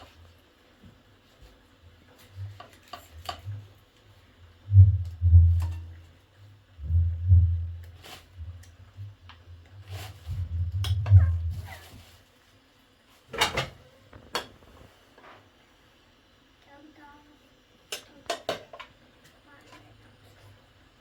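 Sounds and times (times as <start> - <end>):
dull low thumps: 4.6 - 5.8, 6.8 - 9.2, 10.3 - 11.7.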